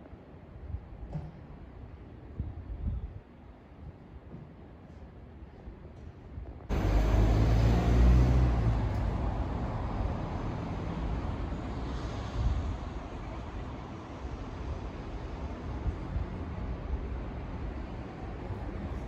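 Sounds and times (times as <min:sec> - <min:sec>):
vehicle rumble: 0:06.7 - 0:13.4.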